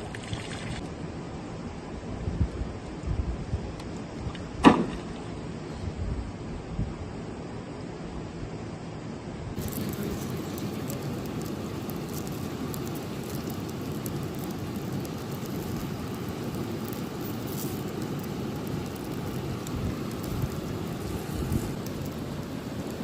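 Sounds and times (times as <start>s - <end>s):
campfire crackling and popping: 9.6s - 23.0s.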